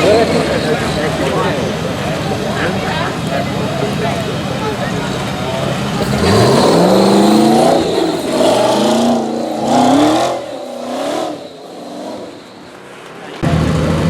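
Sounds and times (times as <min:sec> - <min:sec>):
vehicle engine revving: 0:00.0 - 0:14.0.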